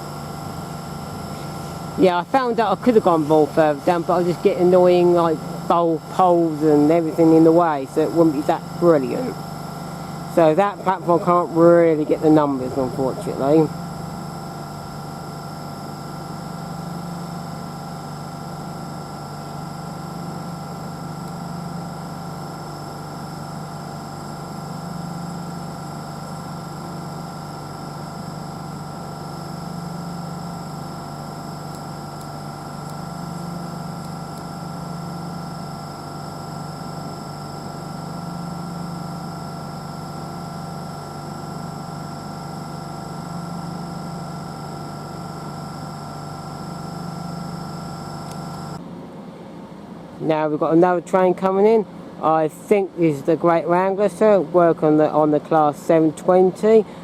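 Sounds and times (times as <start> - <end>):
high-pitched whines: 0.0 - 15.0
train equipment low hum: 0.0 - 49.3.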